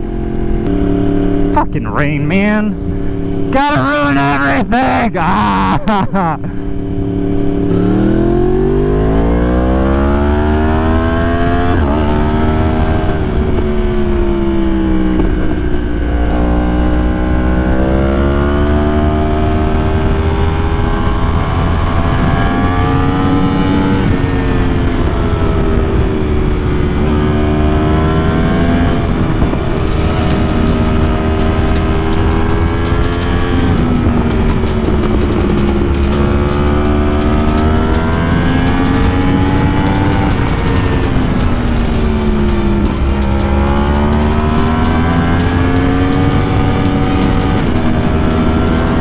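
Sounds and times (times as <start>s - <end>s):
motorcycle engine accelerating: 0.0s - 2.1s, 2.7s - 49.0s
wind rumble on microphone: 7.1s - 37.0s.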